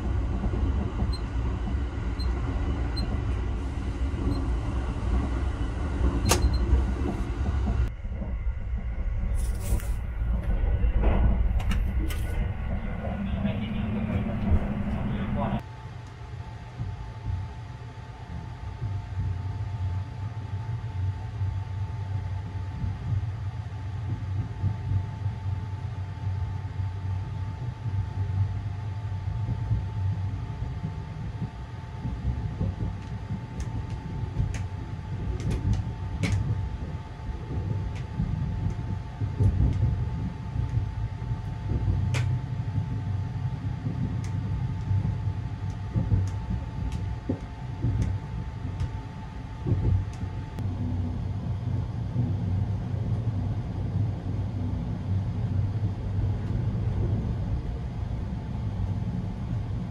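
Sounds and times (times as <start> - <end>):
steady two-tone hum: 0.0 - 59.9
train rumbling: 0.0 - 59.9.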